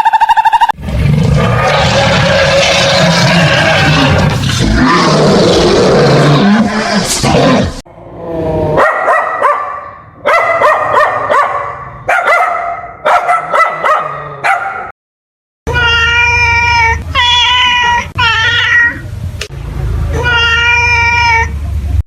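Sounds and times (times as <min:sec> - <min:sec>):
cat meowing: 0:15.7 - 0:19.0, 0:20.2 - 0:21.5.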